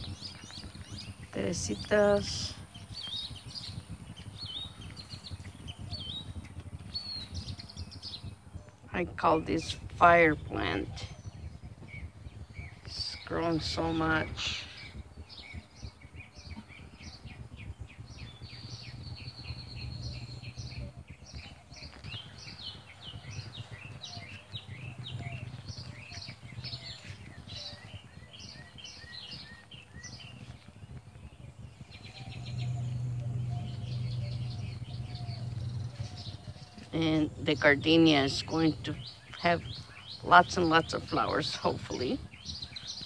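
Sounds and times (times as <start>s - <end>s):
songbirds chirping: 0.0s - 43.0s
steady low hum: 0.0s - 43.0s.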